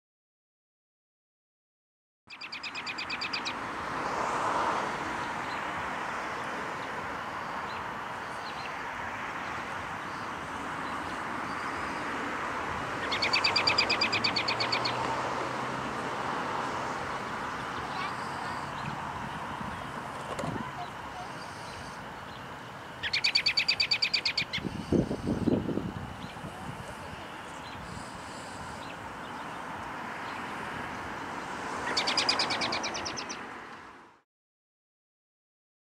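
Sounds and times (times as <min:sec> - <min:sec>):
songbird trilling: 0:02.3 - 0:03.6, 0:13.0 - 0:15.0, 0:20.6 - 0:22.4, 0:23.0 - 0:26.4, 0:31.2 - 0:33.4
outdoor background hiss: 0:02.4 - 0:34.2
bird rattling trill: 0:23.0 - 0:24.7
faint bird chirps: 0:23.0 - 0:25.6.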